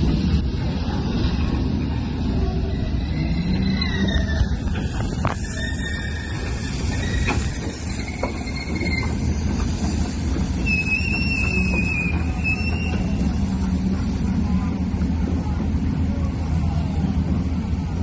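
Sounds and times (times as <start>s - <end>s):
ship rumbling down slipway: 0.0s - 18.0s
high metallic squeals: 2.7s - 9.6s, 10.5s - 13.3s.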